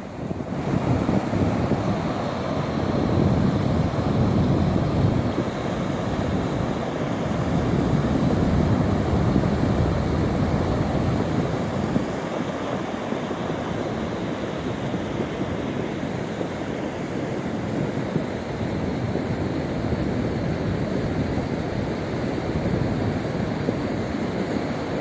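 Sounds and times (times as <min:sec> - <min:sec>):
water rushing: 0:00.0 - 0:17.2.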